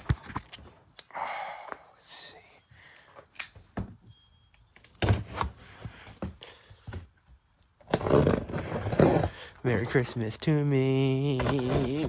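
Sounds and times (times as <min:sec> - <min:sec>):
faint squeak: 0:04.0 - 0:04.8
person speaking: 0:09.6 - 0:12.0.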